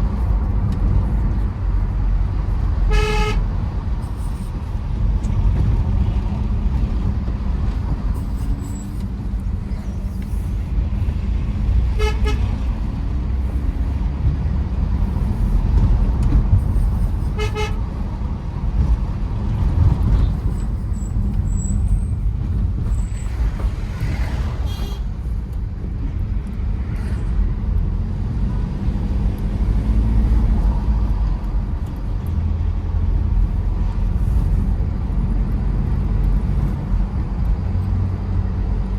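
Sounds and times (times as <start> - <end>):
car engine and road rumble: 0.0 - 38.9
car horn toot: 2.9 - 3.5, 11.9 - 12.5, 17.3 - 17.8, 24.7 - 25.0.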